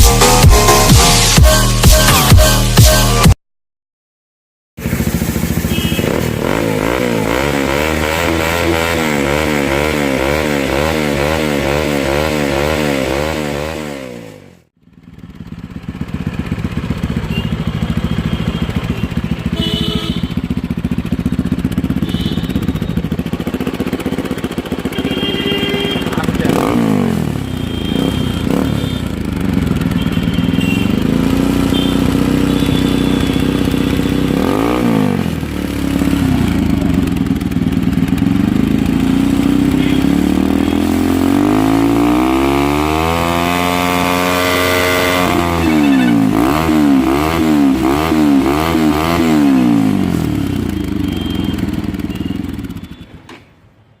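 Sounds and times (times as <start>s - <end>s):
motorcycle engine idling and revving: 0.0s - 3.4s, 4.8s - 54.0s.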